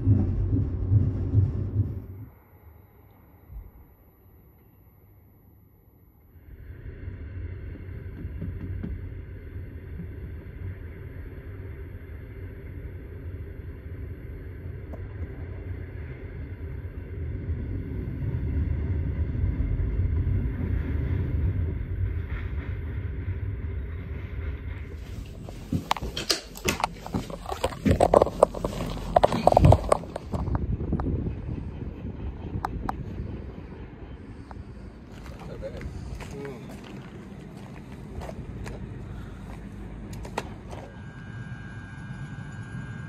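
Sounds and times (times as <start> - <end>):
train rumbling: 0.0 - 5.0, 6.2 - 43.0.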